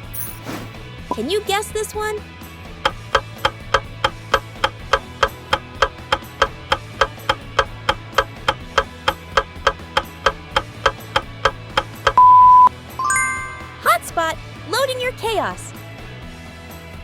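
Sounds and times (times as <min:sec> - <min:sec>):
countdown timer ticking: 0:01.1 - 0:01.6, 0:02.9 - 0:14.4
loud steady beep: 0:12.1 - 0:12.7.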